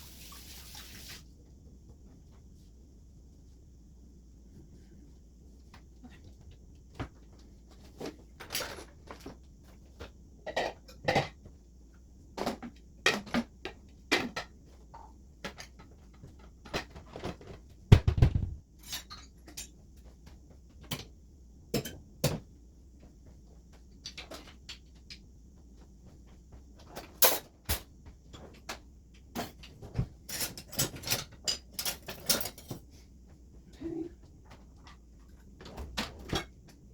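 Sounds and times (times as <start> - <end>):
dishes and cutlery clattering: 30.3 - 32.8.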